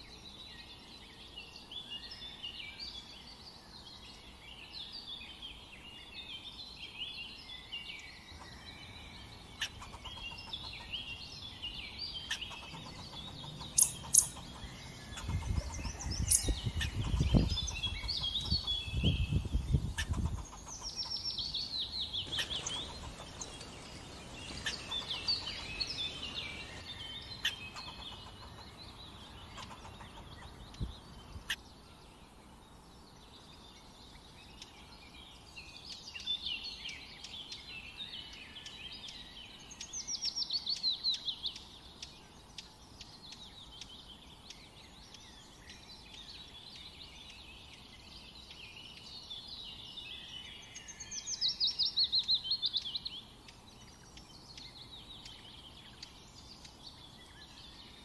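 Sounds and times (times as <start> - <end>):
songbirds singing: 0.0 - 58.0
outdoor hiss: 21.2 - 29.6.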